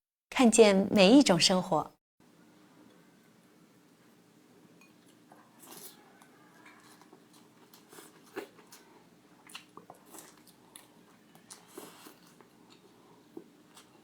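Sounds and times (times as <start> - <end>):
person chewing: 5.0 - 14.0.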